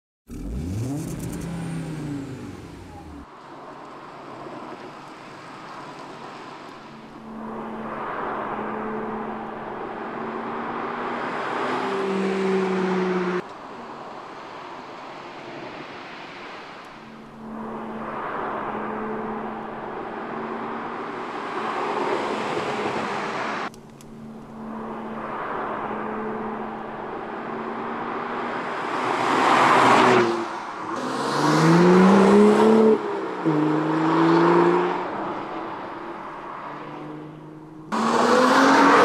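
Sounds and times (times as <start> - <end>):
car engine driving by: 0.3 - 3.3
engine rev sweeping up: 0.3 - 3.3, 31.0 - 35.1, 37.9 - 39.0.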